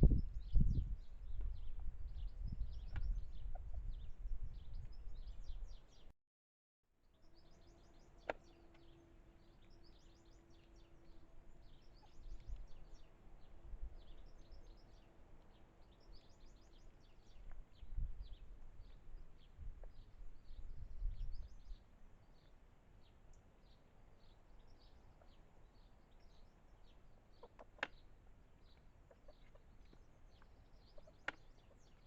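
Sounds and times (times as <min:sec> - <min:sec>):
low wind rumble: 0:00.0 - 0:06.1, 0:09.5 - 0:22.0
small birds chirping: 0:00.0 - 0:06.1, 0:07.1 - 0:32.0.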